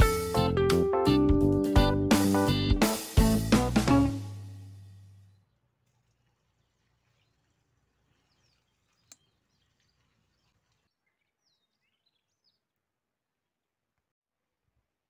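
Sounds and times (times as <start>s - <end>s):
faint bird chirps: 6.5s - 12.7s.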